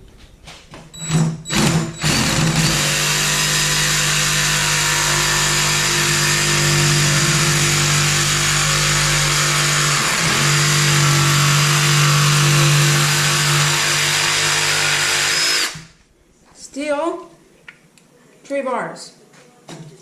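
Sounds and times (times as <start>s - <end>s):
jigsaw cutting: 1.5s - 15.9s.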